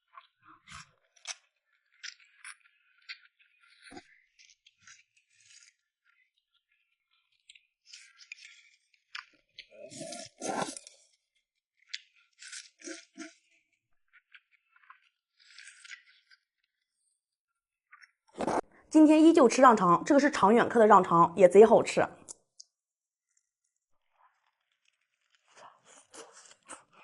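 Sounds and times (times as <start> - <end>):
wet mouth sounds of eating: 8.0 - 11.1, 11.8 - 13.6, 24.9 - 27.0.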